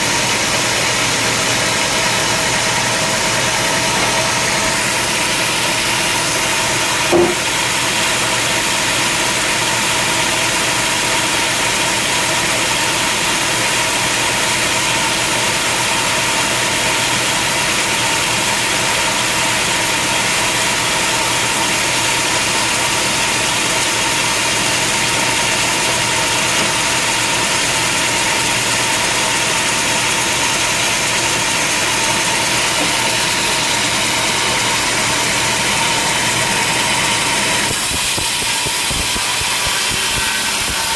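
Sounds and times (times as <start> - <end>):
sawmill machinery humming: 0.0 - 40.9
short knock: 7.1 - 7.6.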